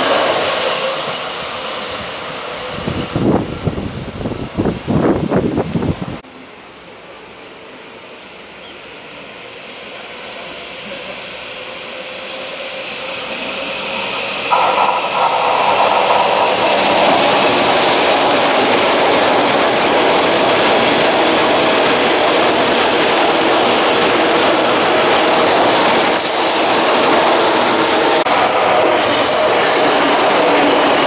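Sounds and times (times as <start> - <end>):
electric train passing: 0.0 - 31.0
wheels rumbling on rails: 10.5 - 31.0.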